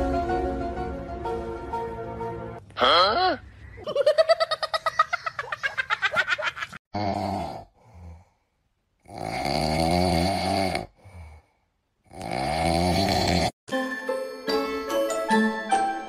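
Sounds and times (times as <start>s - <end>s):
dog snoring: 12.1s - 13.5s.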